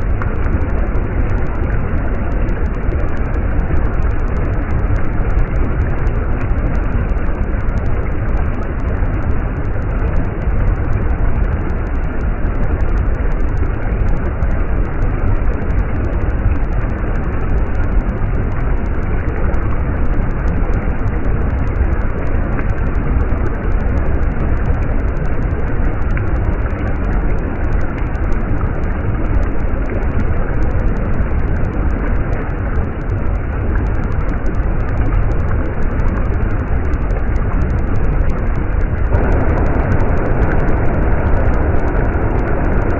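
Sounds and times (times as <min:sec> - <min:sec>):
stream water rushing: 0:39.0 - 0:42.9.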